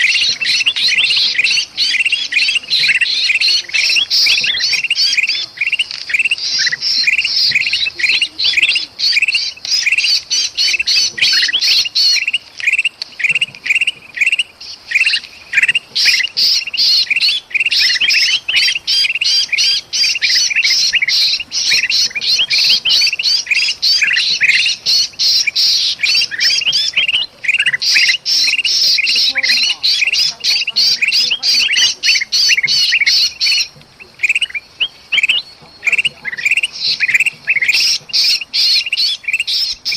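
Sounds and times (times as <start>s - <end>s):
bird distress calls: 0.0s - 39.9s
birds alarm chatter: 0.0s - 39.9s.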